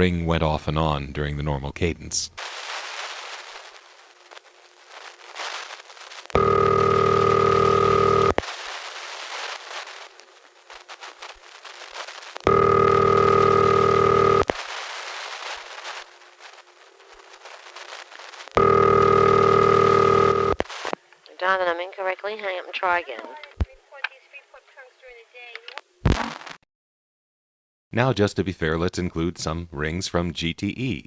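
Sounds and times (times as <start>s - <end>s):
crackling static: 1.8s - 26.6s
telephone ringback tone: 6.4s - 8.4s, 12.5s - 14.5s, 18.6s - 20.6s.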